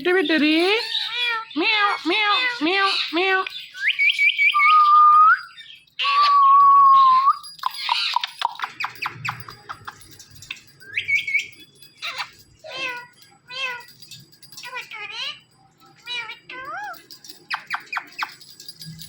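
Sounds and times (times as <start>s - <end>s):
parrot whistling and chattering: 0.6s - 13.8s, 16.0s - 18.4s.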